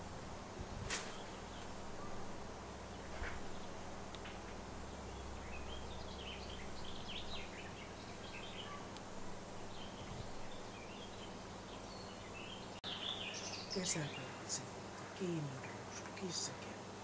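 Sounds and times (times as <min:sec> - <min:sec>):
birds chirping: 0:00.0 - 0:17.0
steady background hiss: 0:00.0 - 0:17.0.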